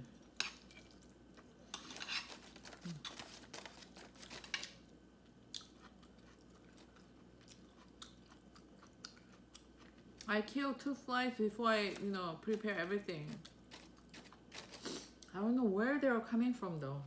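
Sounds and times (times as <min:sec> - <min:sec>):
crunchy chewing of fried food: 0:00.0 - 0:10.4, 0:11.9 - 0:15.3.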